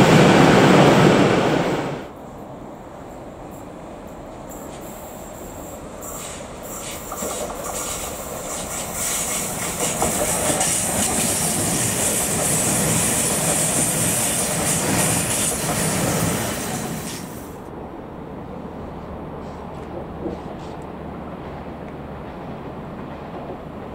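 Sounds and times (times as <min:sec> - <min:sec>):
high hiss: 0:03.5 - 0:17.6
train wheels clattering on rails: 0:03.6 - 0:17.6, 0:19.4 - 0:23.9.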